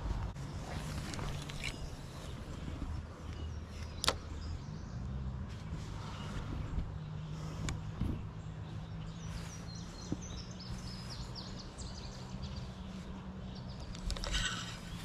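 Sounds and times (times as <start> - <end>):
road traffic hum: 0.0 - 15.0
songbird chirping: 0.0 - 15.0
sharp clicks: 3.8 - 4.4.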